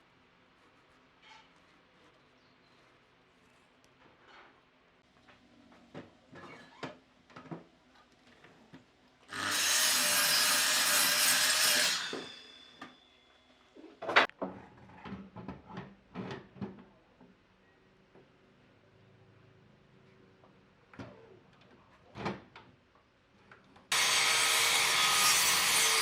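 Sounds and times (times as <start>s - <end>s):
power tool working wood: 23.9s - 26.0s.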